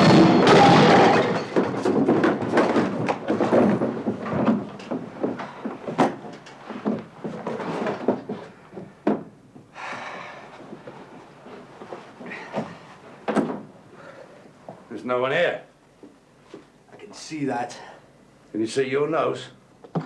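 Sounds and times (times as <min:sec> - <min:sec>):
doors and cupboards banging: 0:00.0 - 0:09.3, 0:12.6 - 0:13.7.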